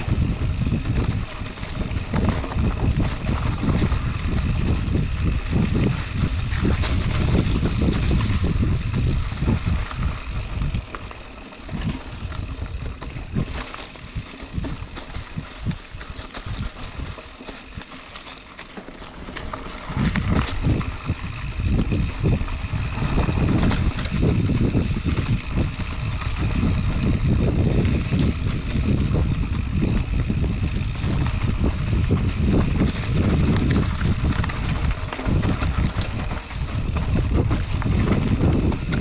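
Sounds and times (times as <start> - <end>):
bike tyres rattling over rough ground: 0.0 - 39.0.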